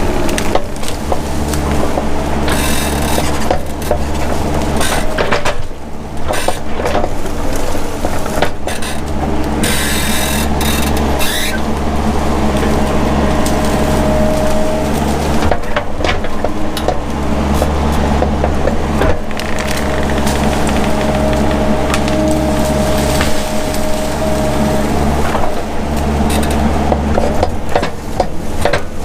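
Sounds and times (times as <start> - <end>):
branches cracking and snapping: 0.0 - 29.0
excavator engine running: 0.0 - 29.0.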